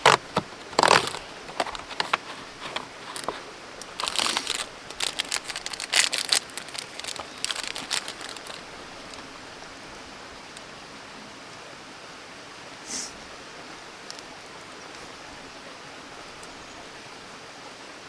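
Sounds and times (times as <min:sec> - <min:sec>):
crinkling and rustling: 0:00.0 - 0:09.4
faint steady hiss: 0:00.0 - 0:18.0.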